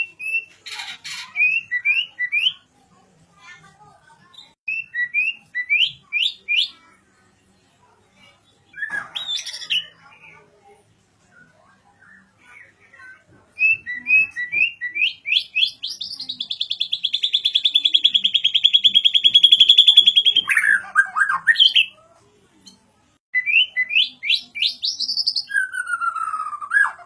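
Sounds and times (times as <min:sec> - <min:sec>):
songbird singing trills: 0:13.6 - 0:21.9, 0:23.4 - 0:27.0.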